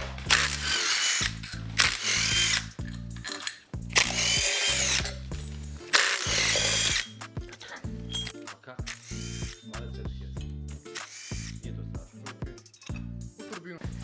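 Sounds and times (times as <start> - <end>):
power drill motor whine: 0.0 - 8.3, 8.9 - 9.6, 11.0 - 11.5.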